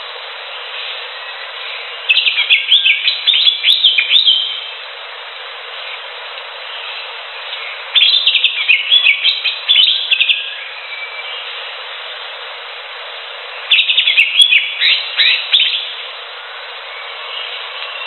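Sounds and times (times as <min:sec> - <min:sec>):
steady background hiss: 0:00.0 - 0:18.0
bird chirping: 0:00.6 - 0:04.7, 0:06.7 - 0:11.6, 0:13.6 - 0:16.1.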